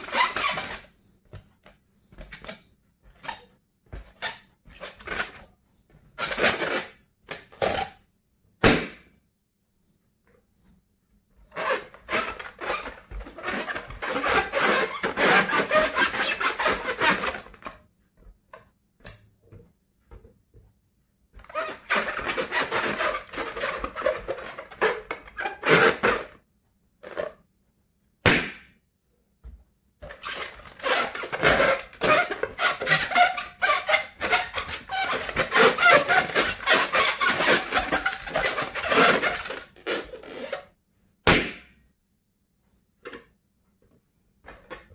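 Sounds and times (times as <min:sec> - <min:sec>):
balloon rubbing crackle: 0:00.0 - 0:01.1, 0:06.1 - 0:09.0, 0:11.4 - 0:17.8, 0:21.4 - 0:26.4, 0:30.0 - 0:41.5
balloon sharp snap: 0:08.6 - 0:09.2, 0:28.2 - 0:28.8, 0:41.2 - 0:41.8.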